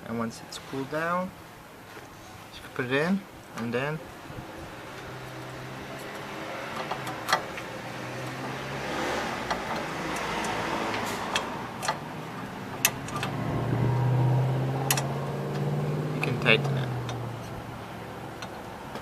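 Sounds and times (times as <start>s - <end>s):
light metallic clicks and taps: 11.3s - 12.0s.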